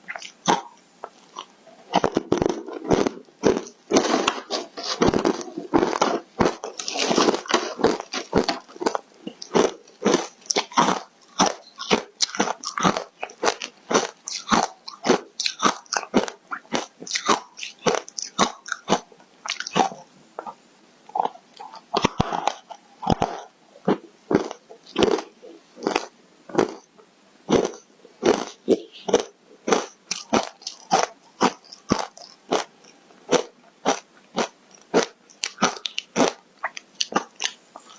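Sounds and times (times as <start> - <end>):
chewing crunchy ice: 0.1 - 26.9, 27.5 - 37.9.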